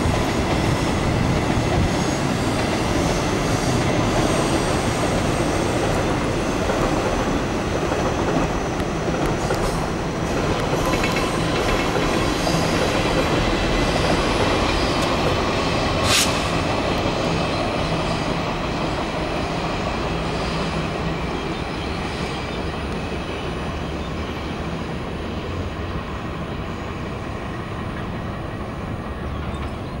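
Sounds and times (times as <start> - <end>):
diesel freight train rumbling past: 0.0 - 30.0
brief hiss: 16.0 - 16.7.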